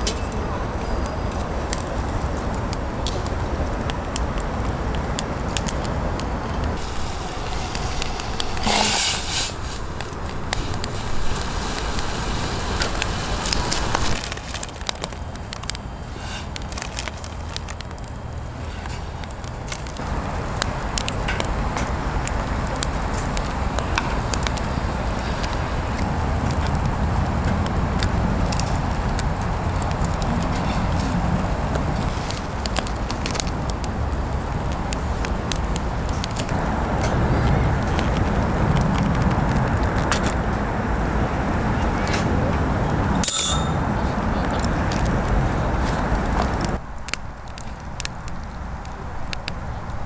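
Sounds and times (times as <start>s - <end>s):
campfire crackling: 0.0s - 50.0s
low rumble: 6.6s - 14.9s
sharp pops: 6.6s - 22.0s
brief hiss: 6.8s - 14.2s.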